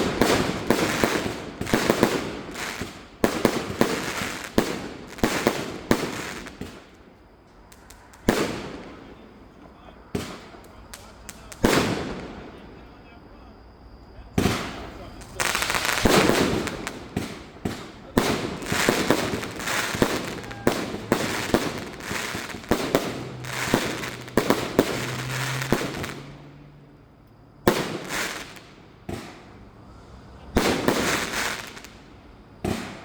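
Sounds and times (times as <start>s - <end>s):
firework cake firing: 0.0s - 13.2s, 14.4s - 26.7s, 27.6s - 29.7s, 30.5s - 33.0s.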